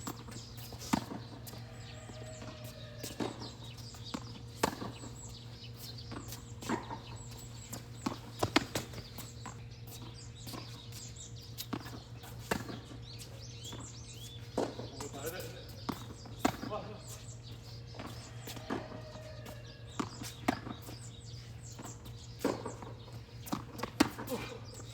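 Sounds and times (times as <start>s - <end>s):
ball bouncing on court: 0.9s - 5.1s
racket striking tennis ball: 4.2s - 5.0s, 23.5s - 24.4s.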